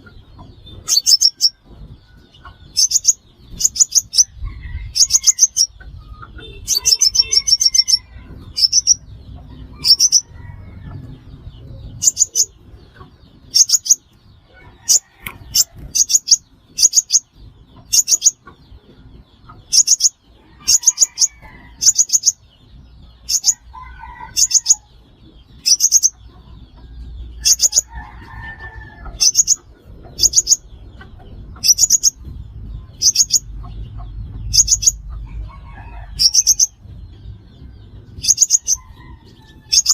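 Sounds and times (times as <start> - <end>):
bird chirping: 0.0 - 39.9
faint low rumble: 24.9 - 39.9.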